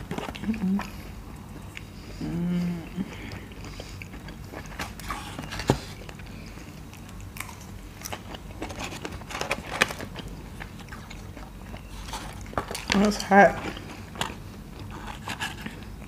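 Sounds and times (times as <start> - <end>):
people chewing with mouth smacks: 0.0 - 16.0
person humming: 2.2 - 3.3.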